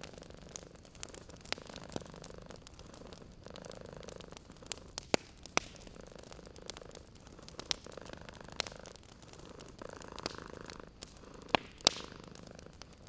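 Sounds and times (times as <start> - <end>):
burning wood popping: 0.0 - 13.0
cat purring: 0.0 - 13.0
wood fire crackling: 0.0 - 13.0.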